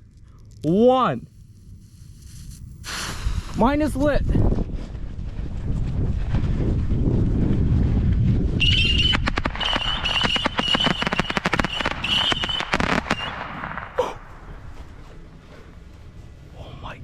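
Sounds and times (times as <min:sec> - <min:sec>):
sharp cracks and pops: 0:00.0 - 0:03.9, 0:07.4 - 0:14.5
rockets launching with whistle: 0:01.4 - 0:03.8, 0:07.2 - 0:14.0.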